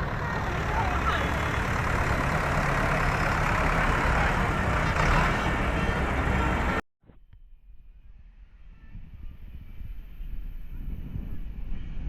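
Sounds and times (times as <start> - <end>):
road noise: 0.0 - 6.8
tractor engines running: 0.0 - 6.8.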